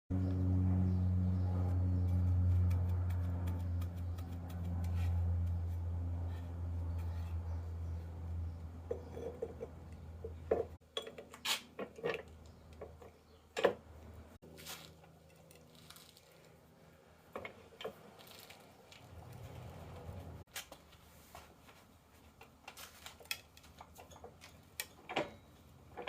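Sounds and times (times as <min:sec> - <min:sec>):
low steady hum: 0:00.1 - 0:11.1
metal clinks and knocks: 0:08.8 - 0:13.8.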